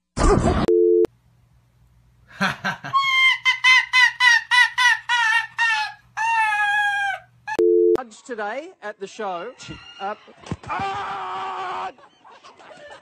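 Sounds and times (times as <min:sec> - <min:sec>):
animal yelping calls: 0:03.0 - 0:07.3.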